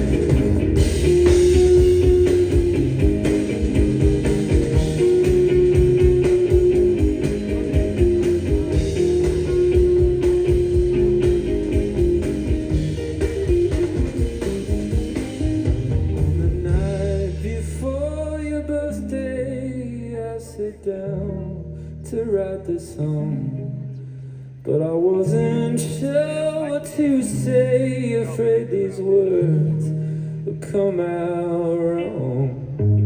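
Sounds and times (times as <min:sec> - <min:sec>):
repeating melody: 0:00.0 - 0:17.0
steady drum beat: 0:00.0 - 0:17.8
sliding melody line: 0:00.0 - 0:17.9
held low note: 0:00.0 - 0:20.0
guitar: 0:00.0 - 0:33.0.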